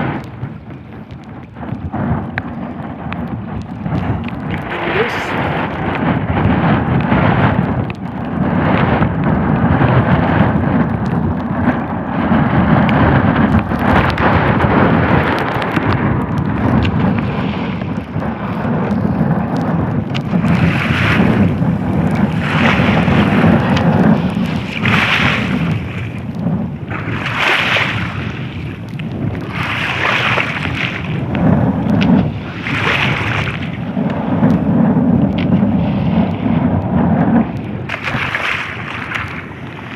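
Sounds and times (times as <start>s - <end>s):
wind buffeting microphone: 0.0s - 39.9s
hissing wind surges: 1.6s - 7.6s, 11.6s - 39.9s.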